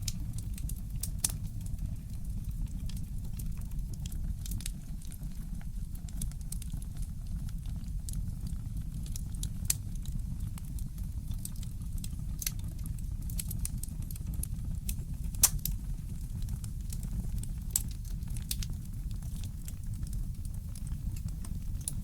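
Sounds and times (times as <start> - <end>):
wood fire crackling: 0.0 - 22.0
steady low rumble: 14.4 - 22.0.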